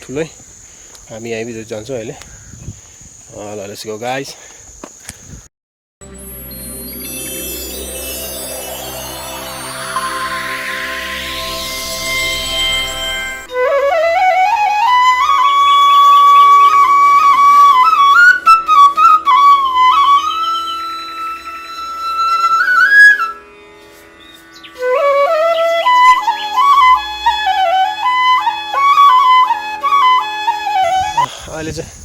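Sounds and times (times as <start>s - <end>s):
steady drone: 6.0s - 13.6s
solo flute melody: 6.0s - 31.3s.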